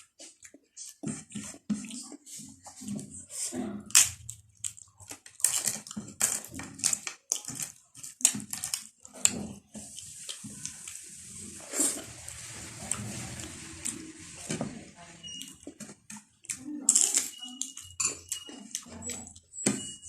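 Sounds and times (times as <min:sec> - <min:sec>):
wet chewing and lip smacks: 0:00.0 - 0:06.1, 0:06.8 - 0:11.0.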